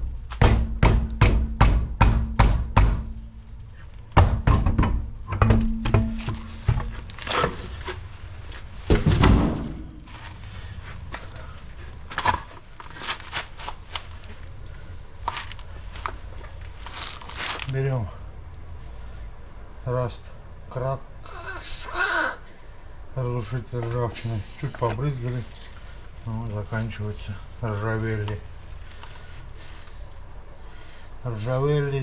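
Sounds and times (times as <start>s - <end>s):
heavy thunk: 4.2s - 8.0s, 8.8s - 10.0s.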